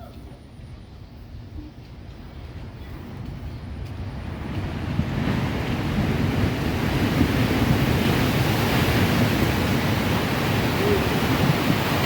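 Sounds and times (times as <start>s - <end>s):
ocean waves roaring against cliff: 3.2s - 12.0s.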